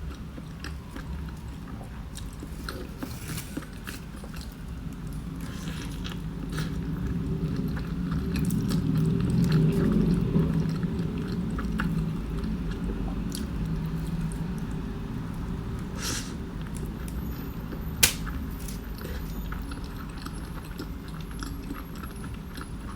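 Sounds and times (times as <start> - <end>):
person chewing food: 16.6 - 22.9.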